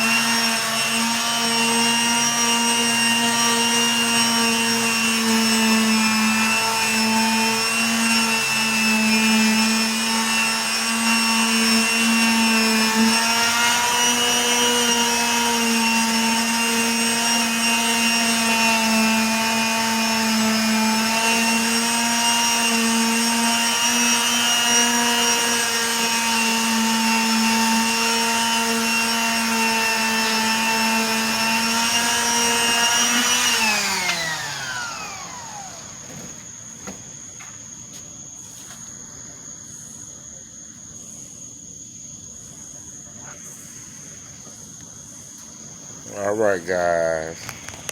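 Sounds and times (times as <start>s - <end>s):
power tool motor whining: 0.0s - 37.0s.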